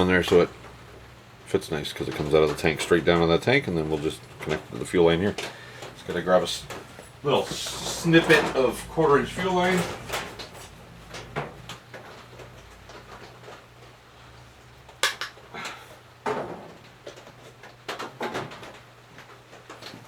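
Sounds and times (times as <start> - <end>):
steady low hum: 0.0 - 14.3
tools and parts clattering: 5.2 - 13.6.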